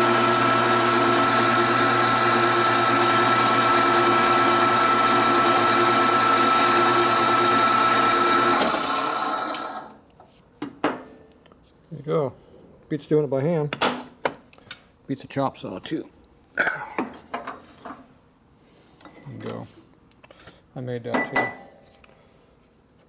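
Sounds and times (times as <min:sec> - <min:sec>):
bandsaw cutting metal: 0:00.0 - 0:10.0.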